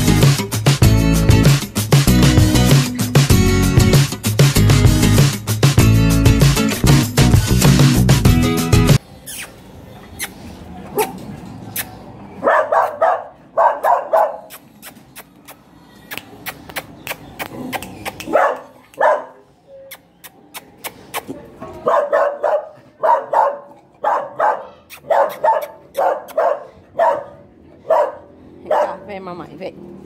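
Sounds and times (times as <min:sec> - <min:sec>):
small dogs barking: 0:10.9 - 0:11.2, 0:12.4 - 0:14.6, 0:17.3 - 0:19.5, 0:21.6 - 0:29.2.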